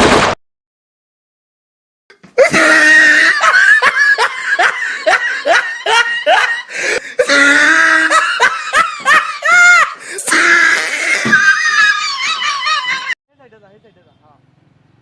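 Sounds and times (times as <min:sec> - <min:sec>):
high-pitched laughter: 0:02.4 - 0:13.2.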